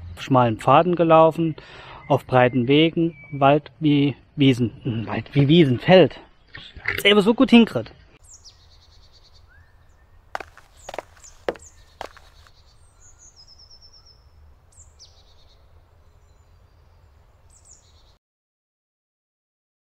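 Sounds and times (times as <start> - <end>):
songbirds chirping: 0.0 - 18.2
bird trill: 8.2 - 18.2.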